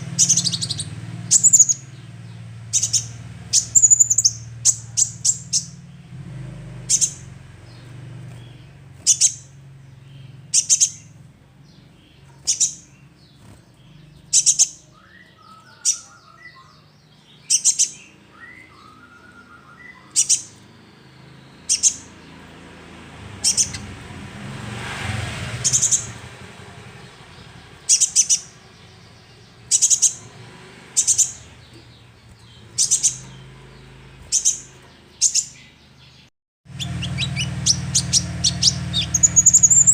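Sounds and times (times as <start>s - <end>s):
young bird chirping: 0.0s - 6.0s, 6.8s - 22.5s, 23.3s - 23.9s, 25.6s - 26.3s, 27.0s - 39.9s
soft low bird twitters: 36.7s - 39.9s.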